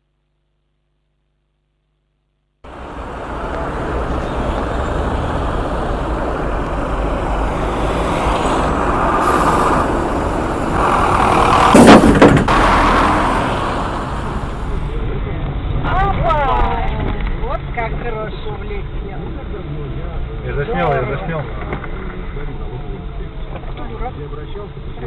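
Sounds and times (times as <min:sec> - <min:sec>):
vehicle engine and road noise: 0:02.6 - 0:25.0
crash impact bangs: 0:06.3 - 0:15.0.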